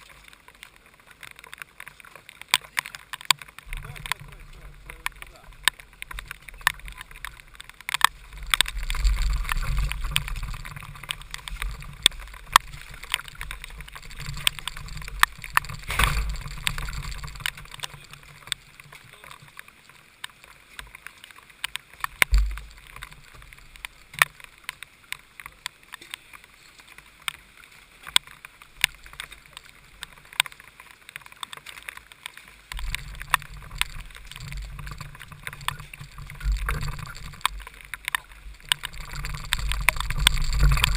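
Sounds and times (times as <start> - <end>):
rain drops clicking on camera: 0.0 - 40.9
steady hiss of rain spray: 0.0 - 40.9
low wind rumble: 3.6 - 19.0, 32.7 - 40.9.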